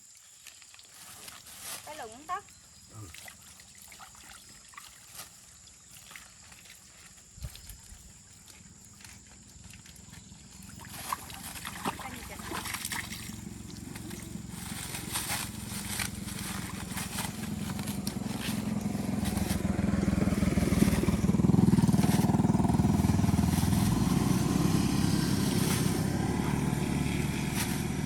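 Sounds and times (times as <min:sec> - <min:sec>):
small engine running: 0:09.1 - 0:28.0.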